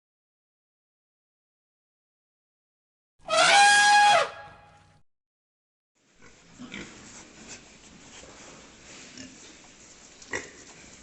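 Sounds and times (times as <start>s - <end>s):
high-pitched animal call: 3.2s - 4.7s
rustling and snuffling: 6.2s - 11.0s.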